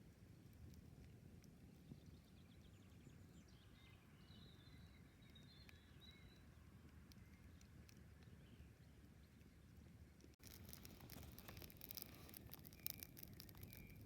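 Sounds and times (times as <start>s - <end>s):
bird chirping: 1.8s - 14.0s
campfire crackling and popping: 10.2s - 14.0s.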